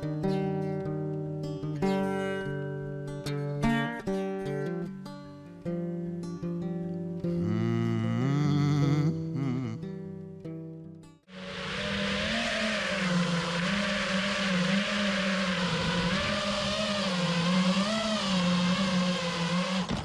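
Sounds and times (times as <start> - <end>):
hiss of rushing air: 11.3 - 19.8
motor running: 11.4 - 20.0.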